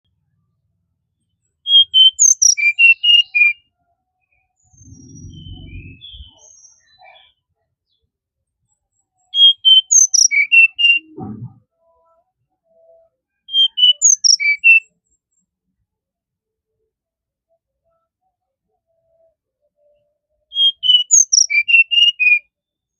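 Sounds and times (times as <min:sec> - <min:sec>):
bird singing whistled notes: 0:01.6 - 0:03.7, 0:04.3 - 0:07.4, 0:09.2 - 0:11.2, 0:12.7 - 0:14.9, 0:19.8 - 0:22.5.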